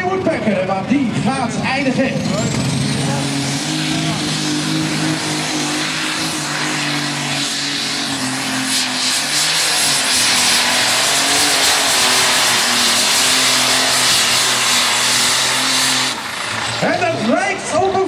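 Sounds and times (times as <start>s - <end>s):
pulling tractor engine at full power: 0.0s - 18.0s.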